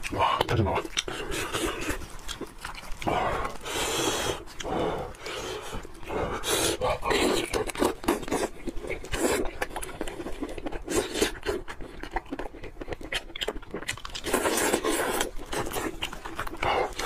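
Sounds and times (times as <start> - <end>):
wet chewing and mouth clicks: 0.0 - 17.0
plastic gloves rustling: 1.1 - 9.1.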